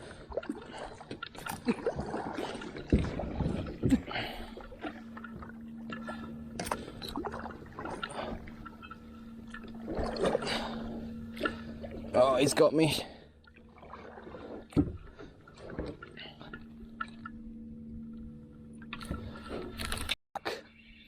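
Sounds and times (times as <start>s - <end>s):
water sloshing: 0.0s - 20.2s
steady low hum: 0.0s - 21.0s.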